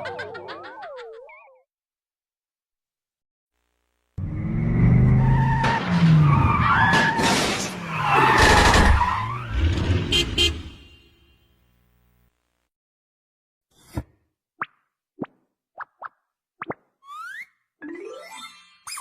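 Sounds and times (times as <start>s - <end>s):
tyres squealing and skidding: 4.2s - 10.9s.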